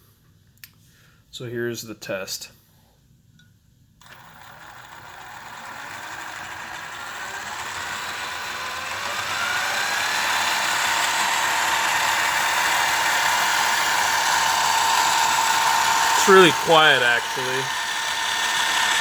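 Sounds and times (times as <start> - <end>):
electric motor whine: 4.0 - 19.0.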